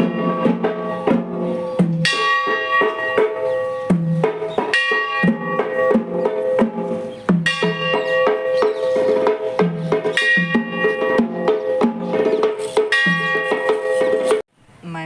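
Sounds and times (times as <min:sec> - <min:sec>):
drum strikes: 0:00.0 - 0:14.4
ringing bell-like metallic tones: 0:00.0 - 0:14.4.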